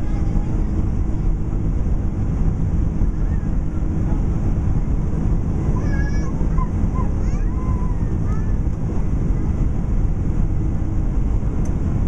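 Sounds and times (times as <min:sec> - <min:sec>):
jet engine roar in cabin: 0:00.0 - 0:12.0.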